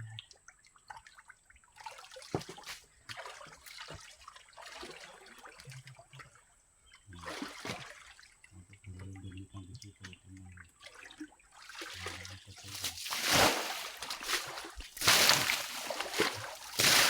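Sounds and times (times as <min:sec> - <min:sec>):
water splashing and dripping: 0:00.1 - 0:06.4, 0:07.1 - 0:09.1, 0:09.9 - 0:17.0.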